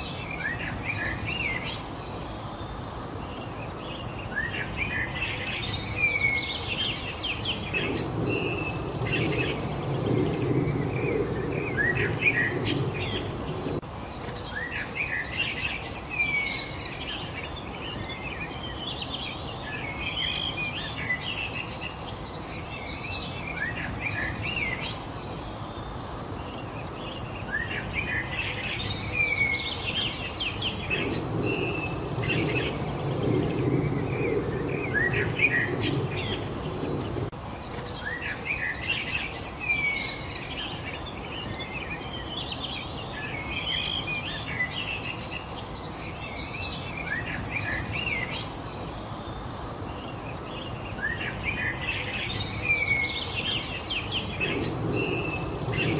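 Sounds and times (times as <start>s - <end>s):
low background noise: 0.0s - 55.9s
songbirds chirping and singing: 0.0s - 55.9s.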